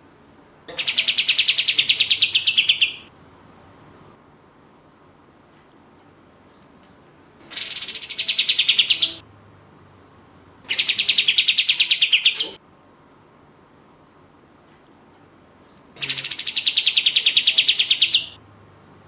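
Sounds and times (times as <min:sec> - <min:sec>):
songbird rapid trills: 0:07.5 - 0:09.2.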